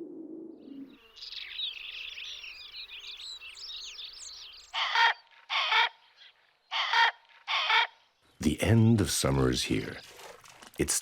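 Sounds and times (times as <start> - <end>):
songbirds chirping and twittering: 0.5 - 11.0
loud harsh bird call: 4.7 - 6.1, 6.7 - 8.1.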